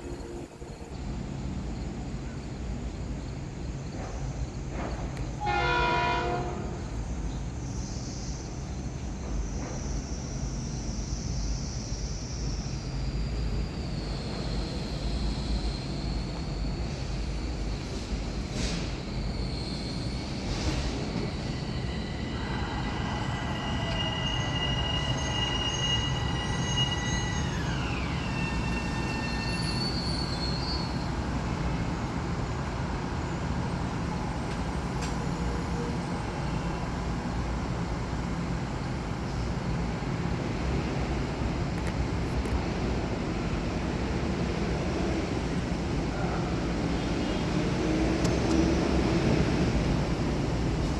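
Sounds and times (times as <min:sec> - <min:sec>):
electric train rumbling: 0:00.0 - 0:50.9
high whining tones: 0:21.1 - 0:31.0.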